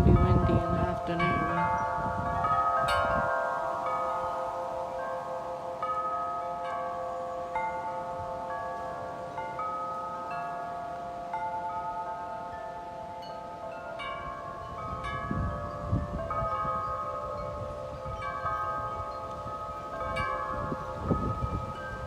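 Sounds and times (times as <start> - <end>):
wind buffeting microphone: 0.0 - 4.9, 14.0 - 22.0
wind chimes ringing: 0.0 - 22.0.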